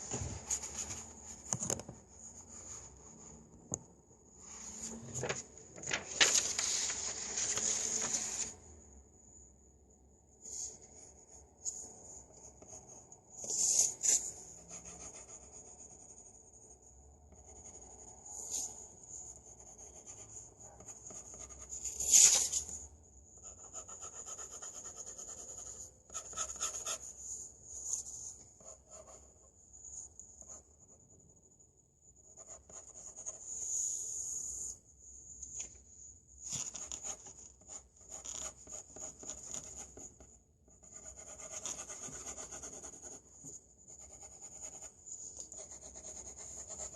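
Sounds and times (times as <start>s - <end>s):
drawing tool scratching on paper: 40.8s - 43.2s.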